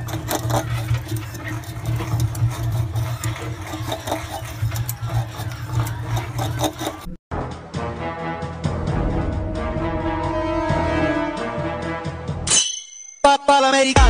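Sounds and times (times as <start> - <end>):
rat gnawing bamboo: 0.0 - 7.1.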